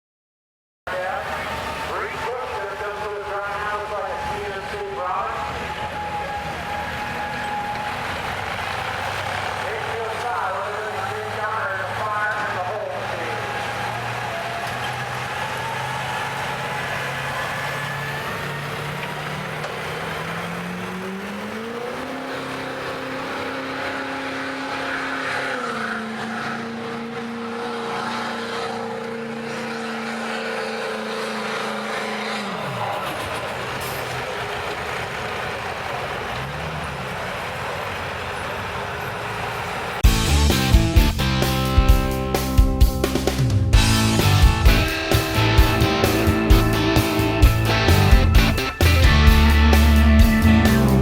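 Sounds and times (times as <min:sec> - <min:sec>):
diesel engine revving: 0:00.9 - 0:51.0
music: 0:40.0 - 0:51.0.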